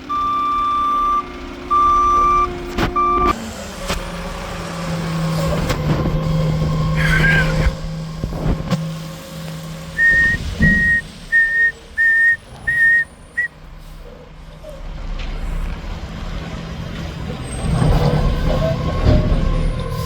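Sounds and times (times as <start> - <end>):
truck backup alarm beeping: 0.0 - 3.4, 10.0 - 13.6
heavy vehicle engine: 0.0 - 20.0.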